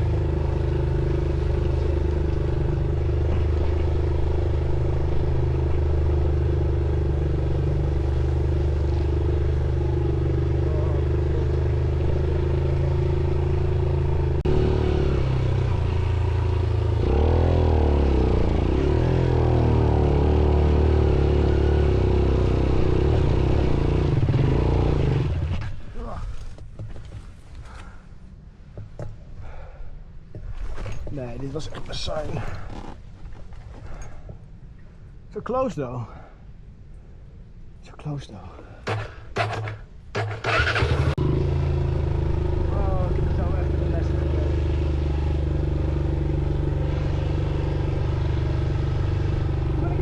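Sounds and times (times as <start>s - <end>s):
motorcycle engine revving: 0.0s - 25.9s, 38.9s - 50.0s
sharp knock: 38.8s - 40.3s.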